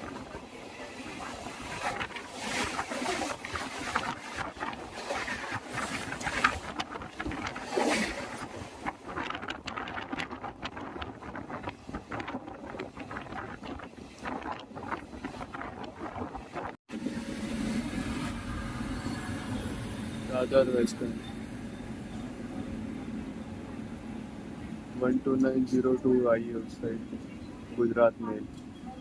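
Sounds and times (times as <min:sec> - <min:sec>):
train running noise: 0:13.8 - 0:29.0.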